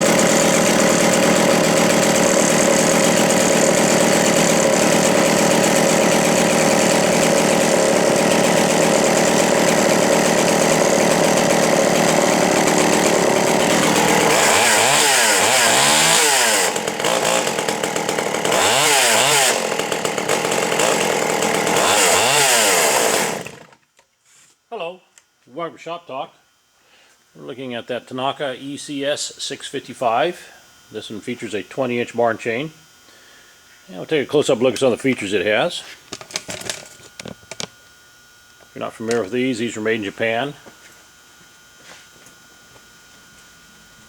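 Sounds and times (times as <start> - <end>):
chainsaw revving: 0.0 - 23.8.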